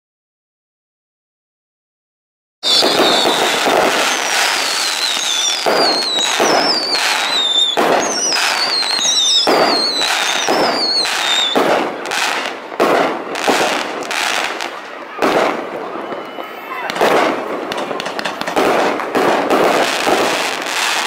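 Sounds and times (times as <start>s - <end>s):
falling firework whistles: 2.6s - 12.5s, 15.3s - 18.7s
firework bangs and crackling: 2.6s - 21.0s.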